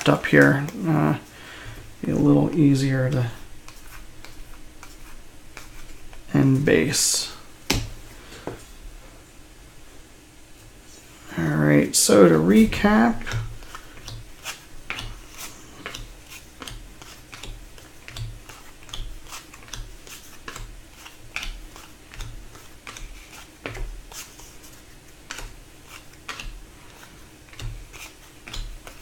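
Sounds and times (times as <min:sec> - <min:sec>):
trading cards clicking and tapping: 0:12.6 - 0:29.0.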